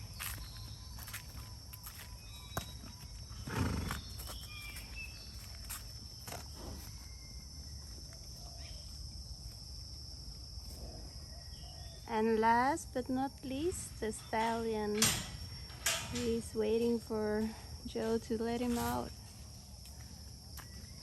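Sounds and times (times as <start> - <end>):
insects droning: 0.0 - 21.0
horse snorting: 3.4 - 4.1.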